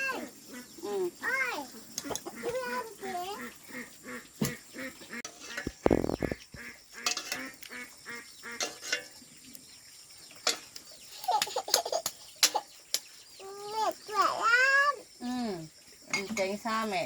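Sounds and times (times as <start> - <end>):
poultry honking and clucking: 2.0 - 8.9.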